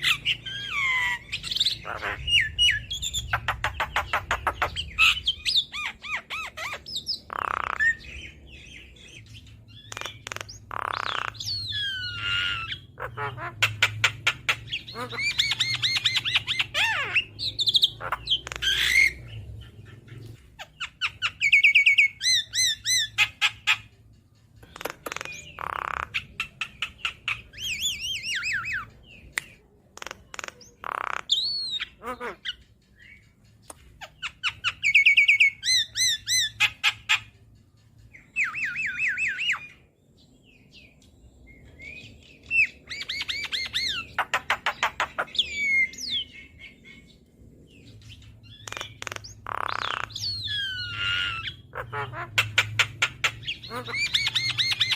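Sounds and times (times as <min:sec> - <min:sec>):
harsh bird squawks: 0:00.0 - 0:08.3, 0:09.8 - 0:20.0, 0:24.6 - 0:28.9, 0:30.0 - 0:32.6, 0:48.5 - 0:54.9.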